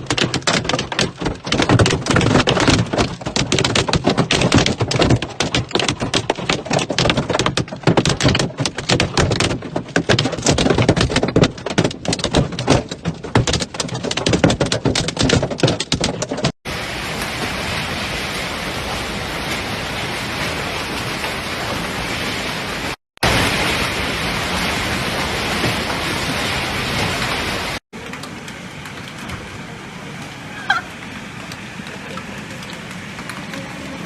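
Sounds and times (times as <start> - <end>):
hailstones clattering: 0.0 - 16.5.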